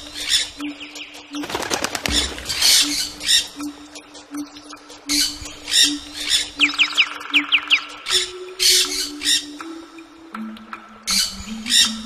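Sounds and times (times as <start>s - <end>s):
birds squawking: 0.0s - 4.0s, 5.1s - 9.6s.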